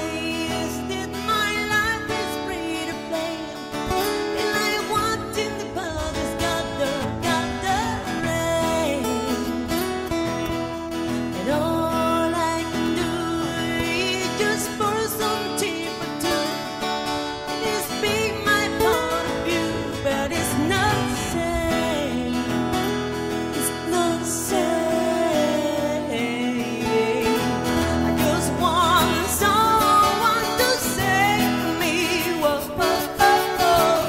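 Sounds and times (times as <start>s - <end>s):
person singing: 0.0s - 34.0s
rock guitars playing: 0.0s - 34.0s.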